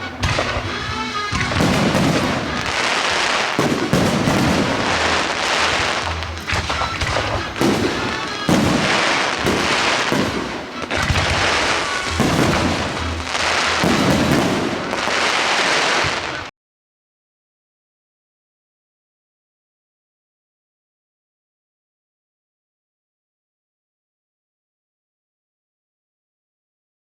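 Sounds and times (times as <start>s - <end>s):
firework shells bursting: 0.0s - 16.5s.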